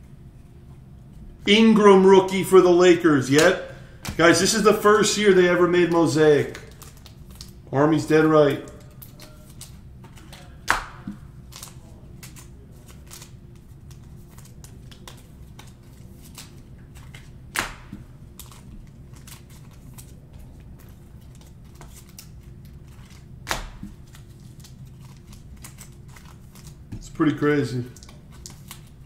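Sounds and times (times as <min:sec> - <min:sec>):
steady low hum: 0:00.0 - 0:29.0
trading cards rustling: 0:02.2 - 0:29.0
sharp card snaps: 0:08.6 - 0:12.5.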